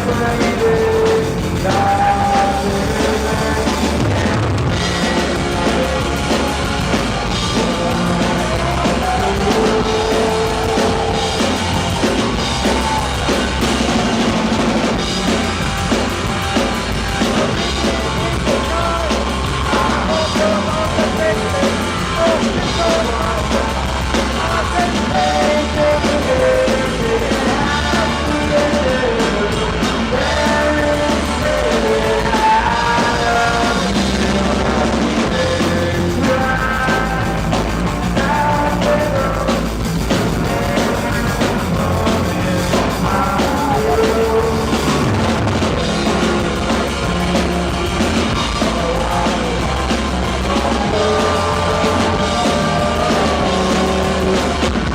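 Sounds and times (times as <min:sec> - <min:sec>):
bass guitar: 0:00.0 - 0:54.9
drum kit: 0:00.0 - 0:54.9
live rock band playing: 0:00.0 - 0:54.9.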